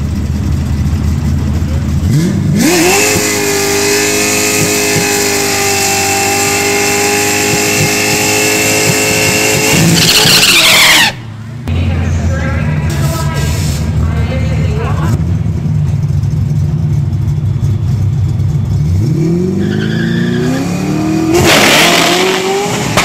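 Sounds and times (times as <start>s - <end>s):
car engine revving: 0.0s - 23.0s
tyres spinning: 3.0s - 11.5s.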